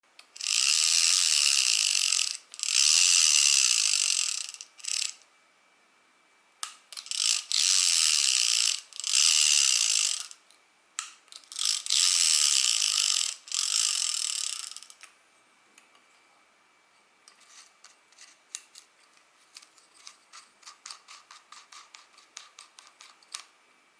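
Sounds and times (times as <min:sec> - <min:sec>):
fishing reel ratcheting click-buzz: 0:00.3 - 0:05.2, 0:07.0 - 0:10.4, 0:11.4 - 0:15.0.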